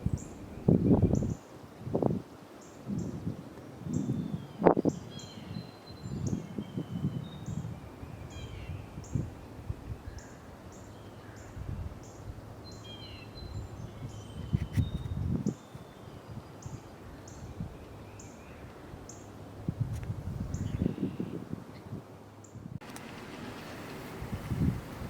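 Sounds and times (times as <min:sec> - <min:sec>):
small birds chirping: 0:10.1 - 0:19.4, 0:20.4 - 0:25.0.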